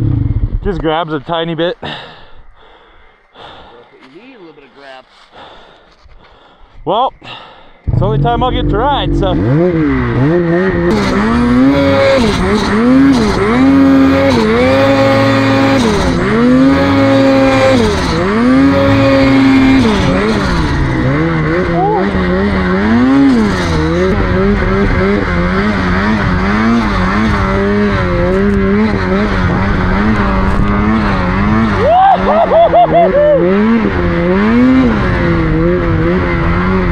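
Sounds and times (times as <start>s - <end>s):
snowmobile engine revving: 7.9s - 36.9s.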